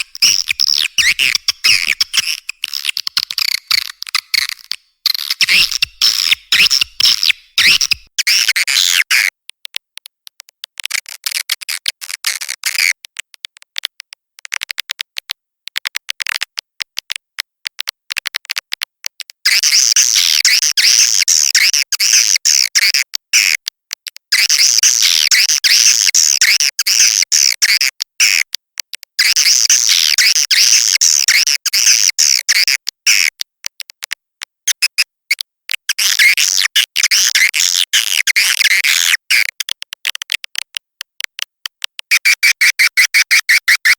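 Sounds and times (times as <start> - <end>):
swiftlet calls twittering: 0.0 - 8.1.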